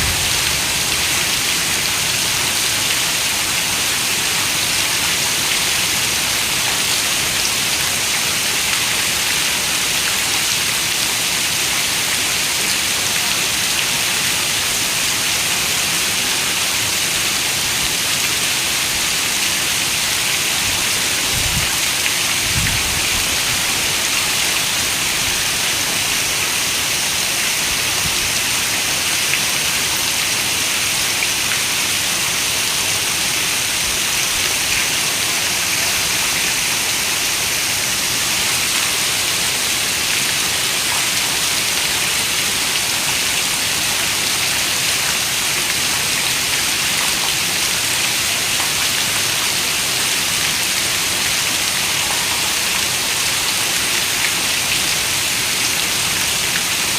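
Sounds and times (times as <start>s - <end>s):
low rumbles: 0.0s - 2.3s
steady rain: 0.0s - 56.9s.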